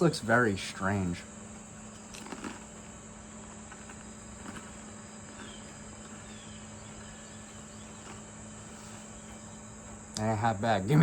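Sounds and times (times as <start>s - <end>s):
snack being chewed: 1.9s - 8.3s.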